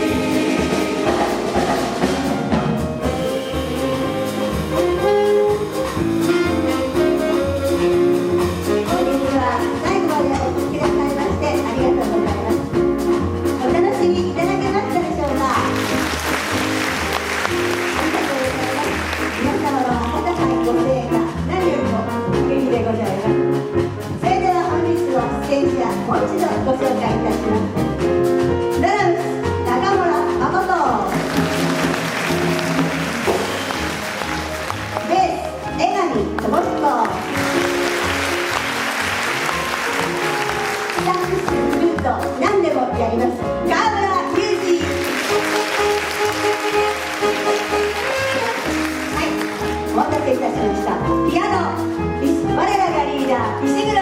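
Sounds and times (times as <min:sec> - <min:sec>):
jazz chorus singing: 0:00.0 - 0:07.6
drum kit strokes: 0:00.0 - 0:13.8, 0:30.2 - 0:42.5
bass: 0:00.0 - 0:54.0
piano: 0:00.0 - 0:54.0
small jazz band playing: 0:00.0 - 0:54.0
saxophone: 0:03.0 - 0:08.4, 0:45.2 - 0:49.4.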